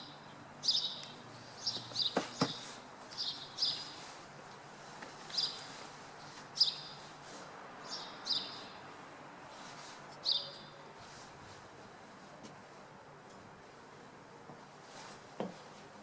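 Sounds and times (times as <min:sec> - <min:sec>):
small birds chirping: 0:00.0 - 0:04.2, 0:05.2 - 0:07.2, 0:07.8 - 0:09.0, 0:10.1 - 0:10.8
city noise hum: 0:00.0 - 0:16.0.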